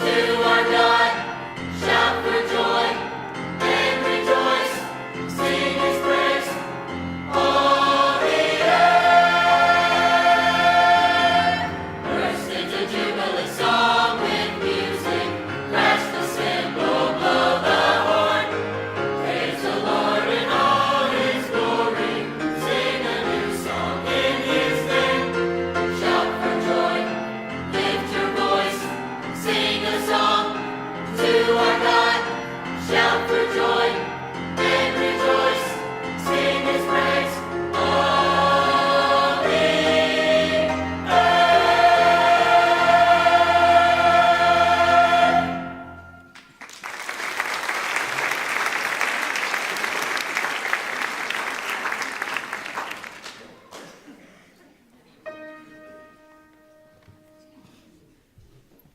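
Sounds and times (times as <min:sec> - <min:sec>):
choir singing: 0:00.0 - 0:46.4.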